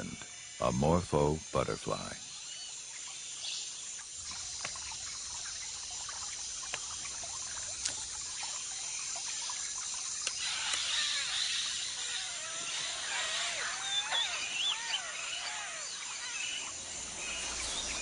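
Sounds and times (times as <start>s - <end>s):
steady high hiss: 0.0s - 18.0s
water dripping and trickling: 2.0s - 18.0s
small ticks and clicks: 4.0s - 11.5s.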